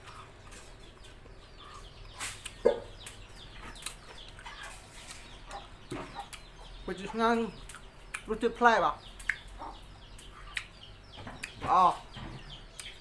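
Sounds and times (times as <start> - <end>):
close chewing: 0.0 - 6.6, 9.2 - 11.6, 12.7 - 13.0.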